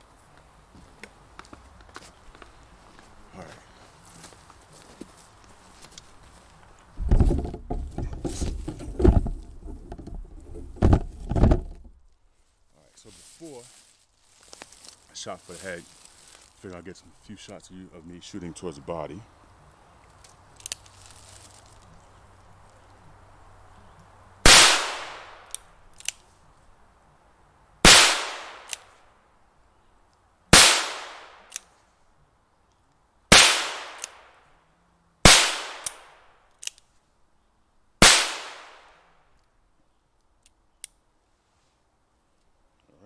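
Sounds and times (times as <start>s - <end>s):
pistol shots: 24.5s - 25.5s, 27.9s - 28.7s, 30.6s - 31.5s, 33.3s - 34.3s, 35.3s - 36.1s, 38.0s - 38.9s.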